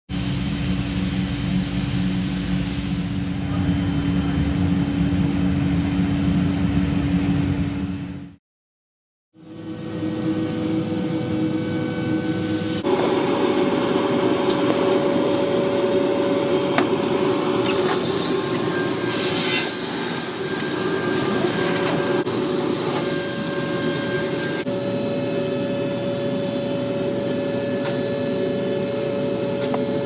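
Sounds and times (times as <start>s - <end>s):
panel saw running: 9.4s - 26.4s
brief high squeals: 17.3s - 24.7s.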